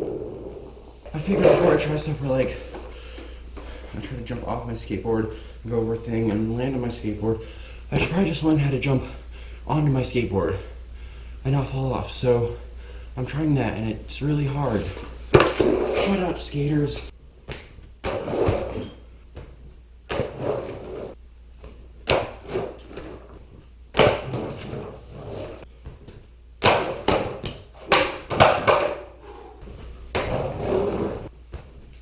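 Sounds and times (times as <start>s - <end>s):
skateboard wheels rolling: 0.0s - 2.8s, 18.0s - 18.9s, 20.1s - 21.2s, 22.1s - 25.6s, 30.1s - 31.3s
skateboard slapping on hard floor: 0.0s - 2.9s, 15.3s - 16.2s, 17.5s - 29.1s, 30.1s - 32.0s.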